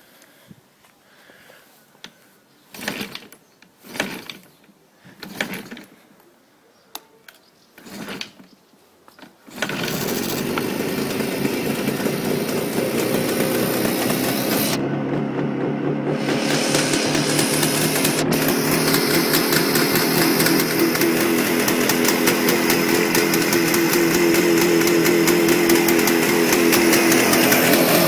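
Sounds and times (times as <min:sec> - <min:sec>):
two-stroke engine being kick-started: 0:02.7 - 0:04.6, 0:05.2 - 0:05.9, 0:07.8 - 0:08.5, 0:09.2 - 0:28.0.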